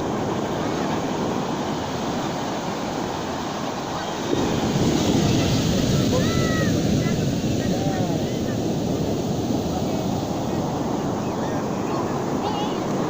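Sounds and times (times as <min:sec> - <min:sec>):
ocean surf washing onto beach: 0:00.0 - 0:13.0
wind rumbling on microphone: 0:00.0 - 0:13.0.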